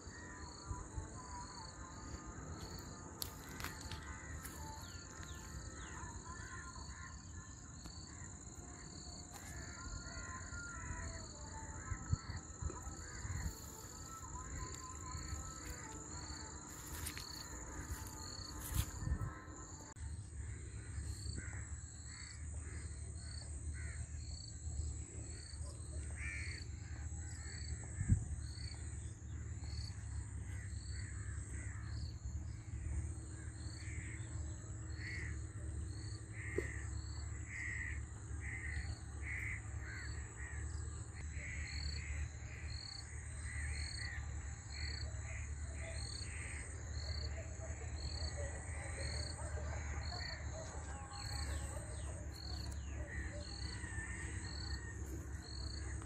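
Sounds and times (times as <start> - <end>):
high insect drone: 0.0 - 56.0
birds cawing: 3.3 - 7.2.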